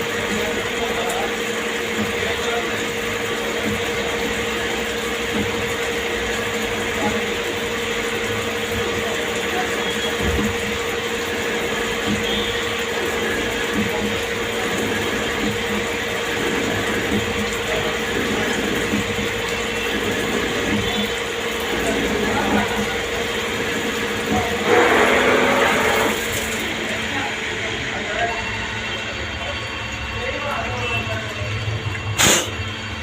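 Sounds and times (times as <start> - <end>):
lathe mechanical hum: 0.0 - 33.0.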